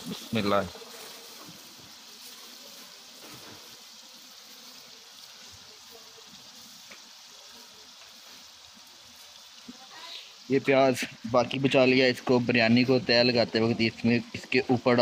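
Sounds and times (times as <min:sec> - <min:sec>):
chicken sizzling in a pot: 0:00.0 - 0:15.0.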